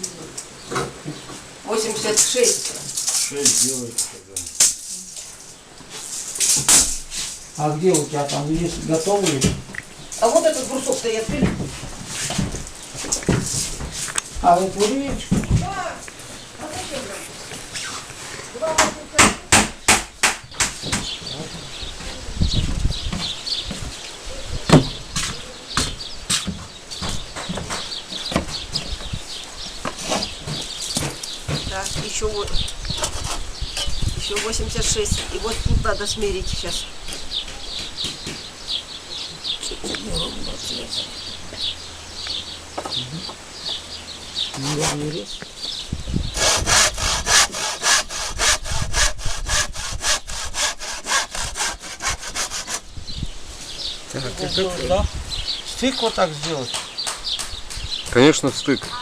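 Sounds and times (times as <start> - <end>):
irregular knocks and clatters: 11.0 - 14.2, 24.7 - 32.3
hand saw cutting wood: 44.6 - 45.2, 46.4 - 52.9.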